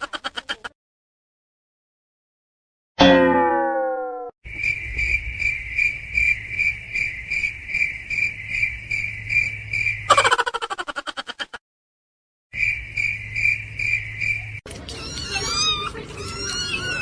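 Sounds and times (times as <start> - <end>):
falling pitched tone: 3.0 - 4.3
cricket chirping: 4.5 - 10.9, 12.6 - 14.6.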